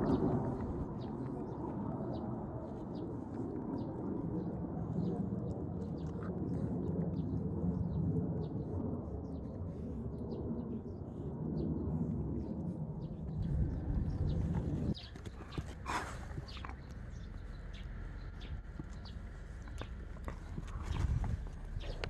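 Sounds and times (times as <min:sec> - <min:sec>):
steady low rumble: 0:00.0 - 0:22.0
small birds chirping: 0:13.0 - 0:22.0.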